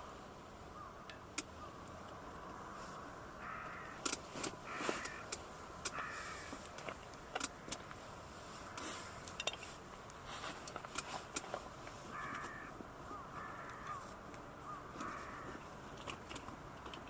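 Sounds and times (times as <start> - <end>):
crows cawing: 0.7 - 6.7, 12.0 - 15.7.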